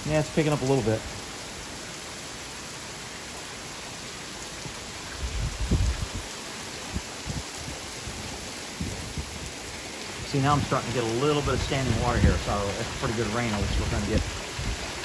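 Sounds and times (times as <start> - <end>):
heavy rain falling: 0.0 - 15.0
low thunder rumbles: 10.2 - 15.0.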